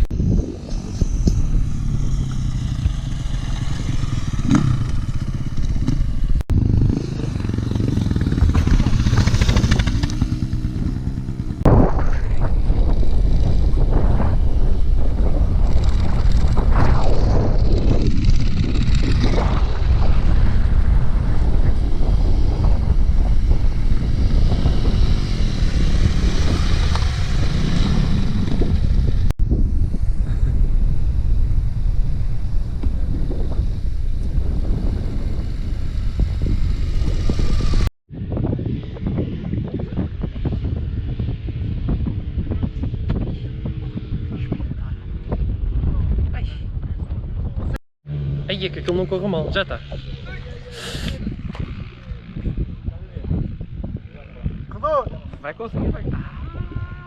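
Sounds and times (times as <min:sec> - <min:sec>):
motorcycle engine running: 0:00.0 - 0:45.6
wind buffeting microphone: 0:00.0 - 0:57.0.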